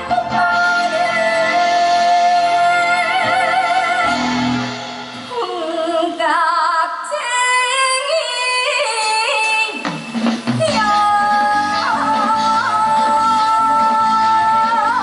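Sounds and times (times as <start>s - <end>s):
band accompaniment: 0.0s - 5.7s, 9.2s - 15.0s
person singing with vibrato: 0.0s - 15.0s.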